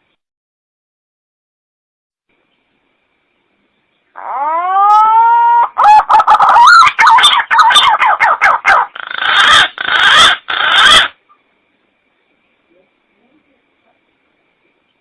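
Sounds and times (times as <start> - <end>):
green pigeon lure calls: 4.2 - 11.2.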